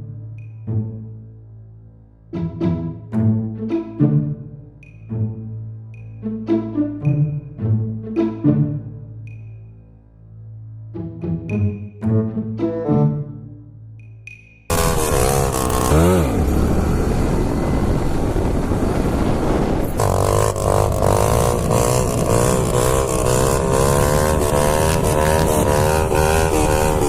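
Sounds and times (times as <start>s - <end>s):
constant rushing noise: 14.7s - 27.0s
motorcycle engine: 14.7s - 27.0s.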